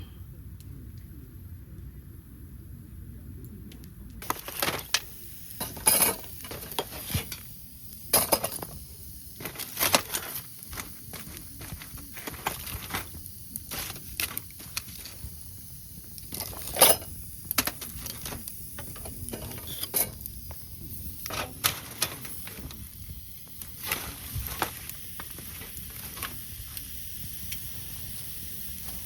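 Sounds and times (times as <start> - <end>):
camp cookware clicking and knocking: 4.2 - 7.4, 8.1 - 8.8, 16.2 - 20.6, 21.2 - 22.8.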